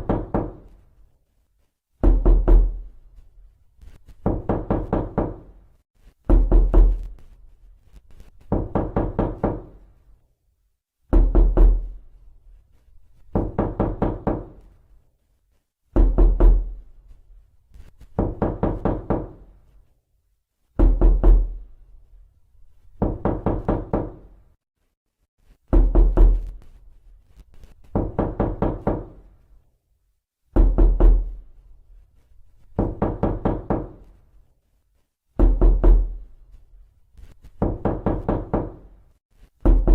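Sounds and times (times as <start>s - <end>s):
knocking on a door: 0.0s - 0.7s, 2.0s - 2.9s, 4.2s - 5.6s, 6.3s - 7.1s, 8.4s - 9.8s, 11.1s - 12.0s, 13.3s - 14.6s, 15.9s - 16.8s, 18.1s - 19.5s, 20.8s - 21.6s, 23.0s - 24.3s, 25.7s - 26.6s, 27.8s - 29.3s, 30.5s - 31.4s, 32.8s - 34.1s, 35.4s - 36.2s, 37.5s - 39.0s, 39.6s - 39.9s.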